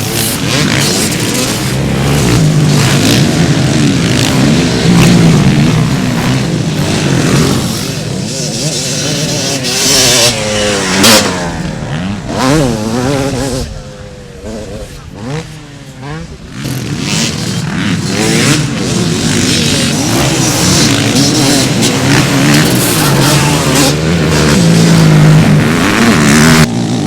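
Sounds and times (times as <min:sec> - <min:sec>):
motocross bike engines revving: 0:00.0 - 0:27.0.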